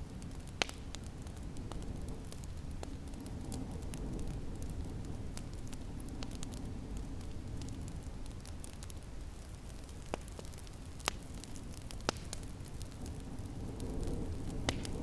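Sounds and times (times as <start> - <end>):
sharp pops of fire: 0.0 - 15.0
wood fire crackling: 0.0 - 15.0
snowstorm wind: 11.0 - 15.0.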